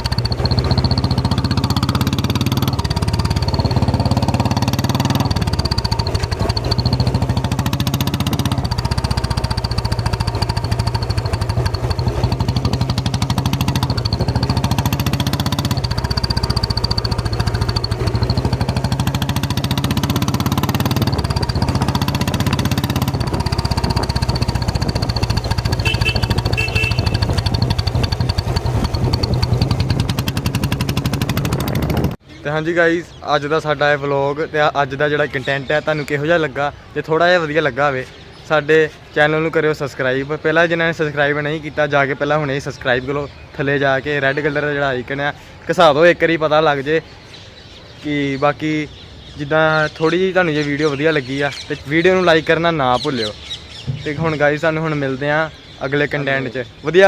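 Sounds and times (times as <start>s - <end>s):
motorcycle engine thumping: 0.0s - 32.2s, 53.0s - 55.0s.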